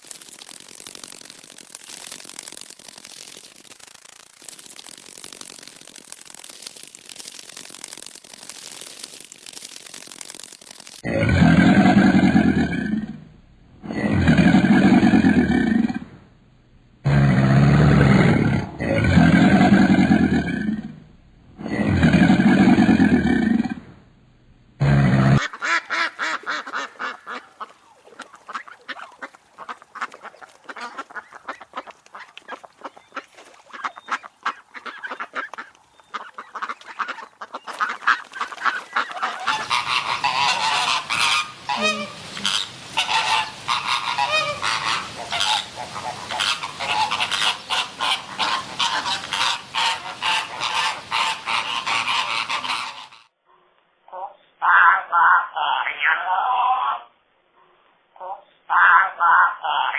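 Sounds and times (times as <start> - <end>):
geese honking: 33.8 - 53.2.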